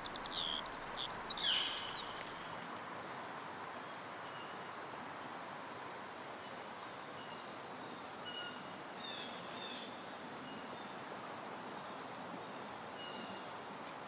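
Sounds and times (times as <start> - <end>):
birds chirping and whistling: 0.0 - 2.6
soft background hiss: 0.0 - 14.0.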